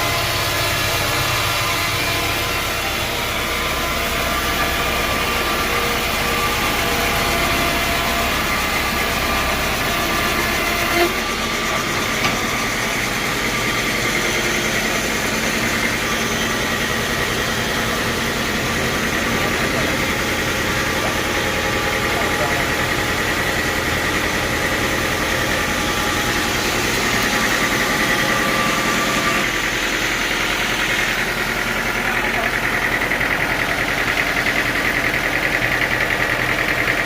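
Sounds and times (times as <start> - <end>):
sawmill machinery running: 0.0 - 37.0.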